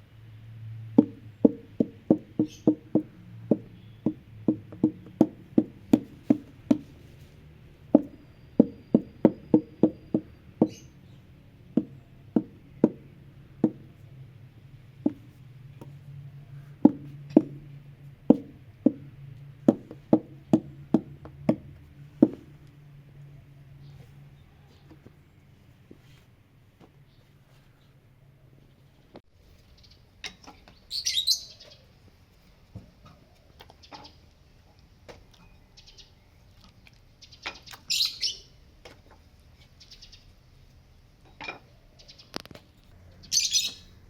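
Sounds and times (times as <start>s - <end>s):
hollow wooden knocks: 0.8s - 10.8s, 11.6s - 14.1s, 14.9s - 22.8s.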